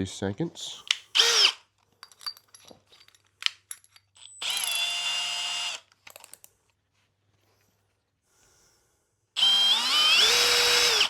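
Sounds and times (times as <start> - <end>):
power drill whine: 1.1 - 1.6, 4.2 - 5.9, 9.4 - 11.0.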